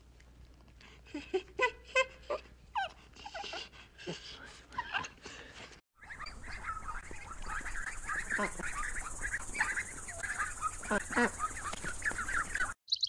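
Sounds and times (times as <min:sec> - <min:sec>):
dog whimpering and yipping: 0:02.0 - 0:03.7.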